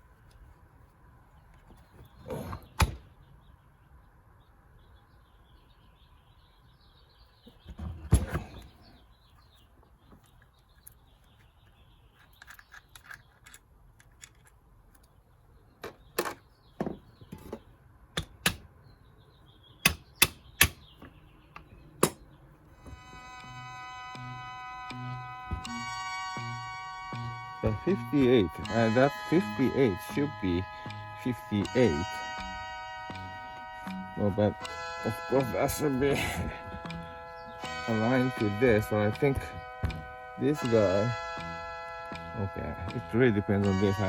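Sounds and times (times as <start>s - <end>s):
metal parts clicking and knocking: 10.2s - 15.2s.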